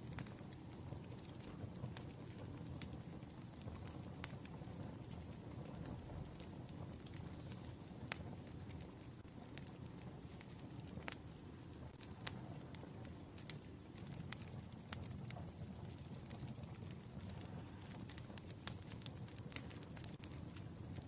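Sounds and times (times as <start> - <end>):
wood fire crackling: 0.0 - 21.0
sharp pops of burning logs: 9.4 - 21.0.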